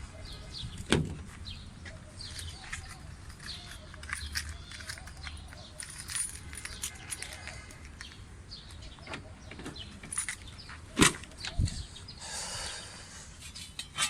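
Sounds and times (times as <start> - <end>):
metallic clicks of tools handled: 2.2 - 8.8.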